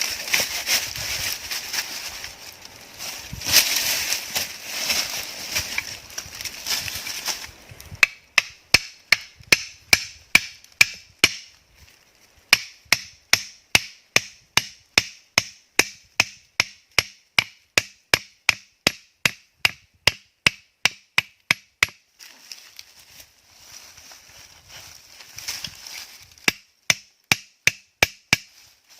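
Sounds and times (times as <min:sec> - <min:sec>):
blade chopping wood: 0:08.0 - 0:11.5, 0:26.4 - 0:28.6.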